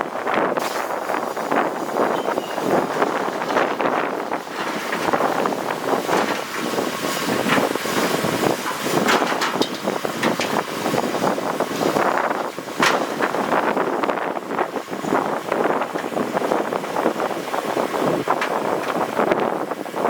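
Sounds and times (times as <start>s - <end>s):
heavy machinery engine: 0.1s - 20.0s
sharp clanks and crunches: 2.2s - 10.7s, 12.8s - 13.5s.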